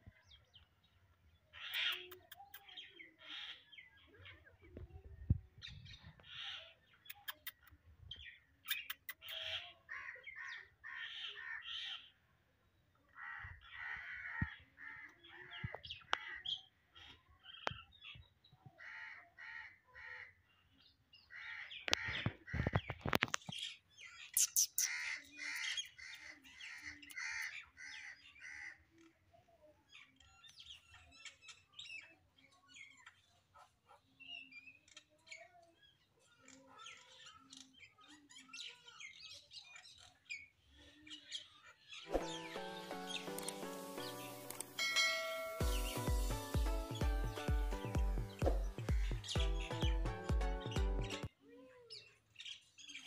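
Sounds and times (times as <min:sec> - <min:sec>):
birds chirping: 0:00.0 - 0:12.2, 0:20.8 - 0:28.8, 0:29.9 - 0:51.3.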